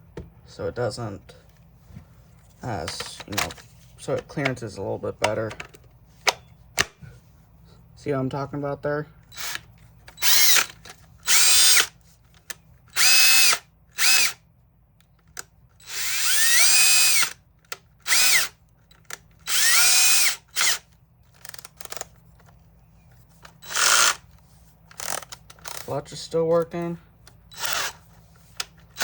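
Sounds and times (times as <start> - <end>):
cordless drill whining: 9.3 - 12.0, 12.9 - 14.4, 15.8 - 17.4, 18.0 - 22.1, 23.5 - 24.3, 24.9 - 25.9, 27.5 - 29.0
drill clicks: 9.3 - 14.4, 15.3 - 22.2, 23.4 - 26.0, 26.6 - 29.0.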